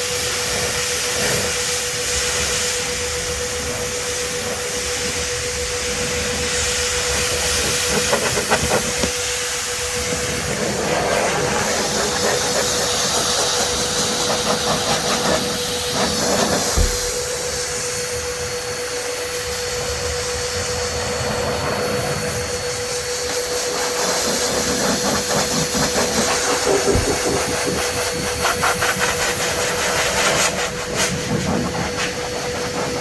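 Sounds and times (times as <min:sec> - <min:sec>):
car dryer blasting air: 0:00.0 - 0:33.0
motor whine: 0:00.0 - 0:33.0.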